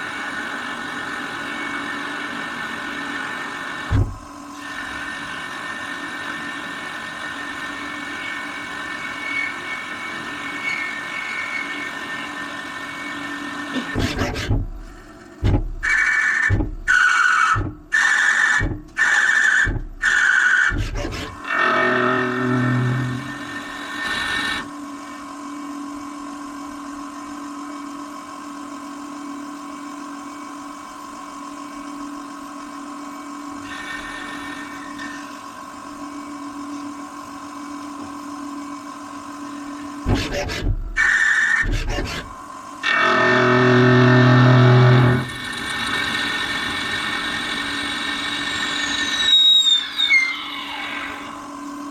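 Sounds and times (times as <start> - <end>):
lathe motor and spindle whine: 0.0 - 51.9
loud cutting noise bursts: 40.0 - 49.4.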